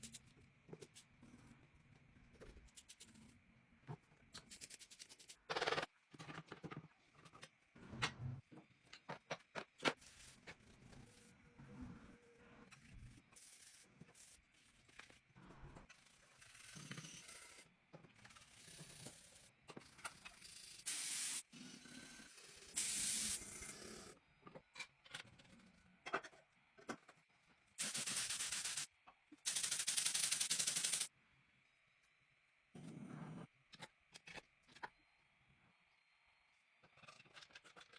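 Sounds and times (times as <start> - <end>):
air hissing bursts: 22.8 - 23.4.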